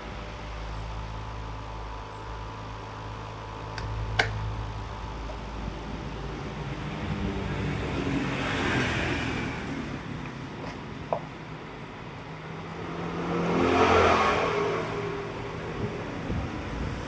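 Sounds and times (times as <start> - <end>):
electric fan motor hum: 0.0 - 17.0
sharp click: 3.8 - 4.5.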